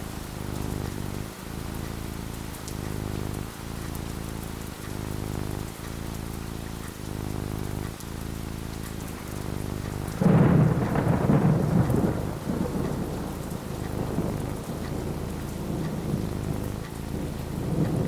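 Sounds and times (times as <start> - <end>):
steady rain: 0.0 - 18.0
thunderclap rumbling: 9.0 - 18.0.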